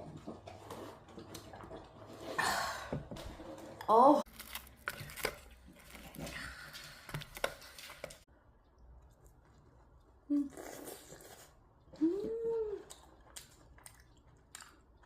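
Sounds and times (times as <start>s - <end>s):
crunching and chewing: 4.3s - 8.2s, 12.8s - 15.0s.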